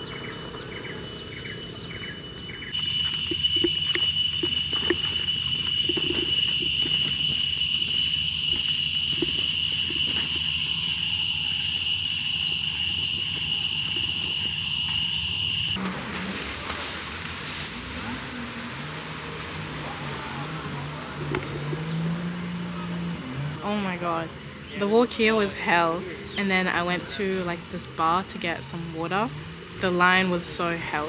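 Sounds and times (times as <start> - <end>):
cicadas droning: 0.0 - 15.8
outdoor noise: 0.0 - 31.0
faint low hum: 2.8 - 15.8.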